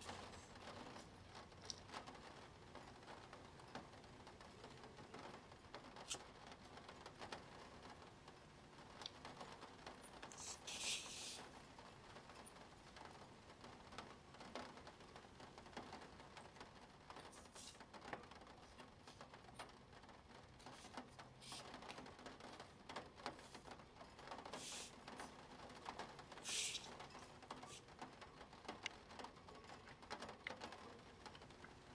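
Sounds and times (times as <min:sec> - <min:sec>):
scratchy rustles: 0:10.2 - 0:11.5.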